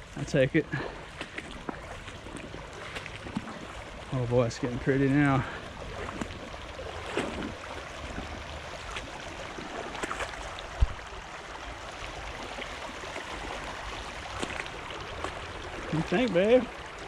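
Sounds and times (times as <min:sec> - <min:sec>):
creek water flowing: 0:00.0 - 0:17.0
short low thump: 0:10.8 - 0:11.0.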